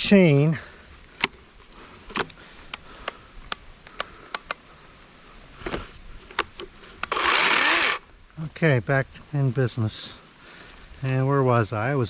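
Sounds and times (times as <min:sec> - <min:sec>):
sharp clicks of tensioning cam: 0:02.0 - 0:04.6, 0:05.6 - 0:08.0
electric chainsaw whirring: 0:07.0 - 0:08.1.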